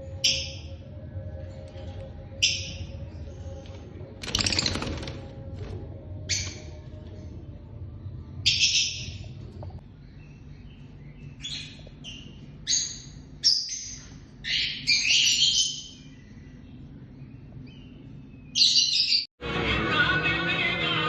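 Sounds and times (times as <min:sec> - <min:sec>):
faint low hum: 0:00.0 - 0:18.6
lovebirds chirping and screeching: 0:01.5 - 0:05.1, 0:06.2 - 0:06.9, 0:08.4 - 0:19.3.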